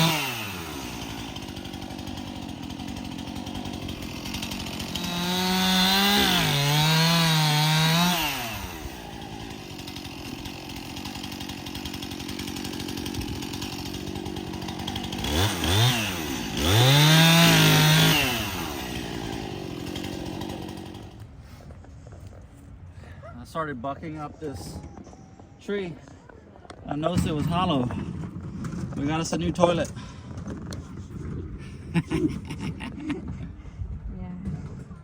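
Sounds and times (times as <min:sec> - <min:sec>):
chainsaw cutting log: 0:00.0 - 0:21.4.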